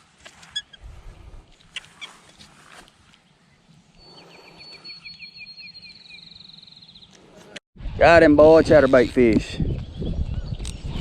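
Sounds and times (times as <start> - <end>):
small bird singing: 3.2 - 7.2, 9.6 - 11.0.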